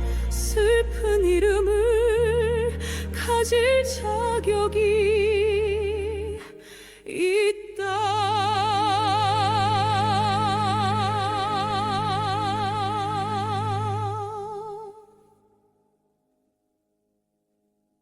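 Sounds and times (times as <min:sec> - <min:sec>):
sustained low chord: 0:00.0 - 0:06.6.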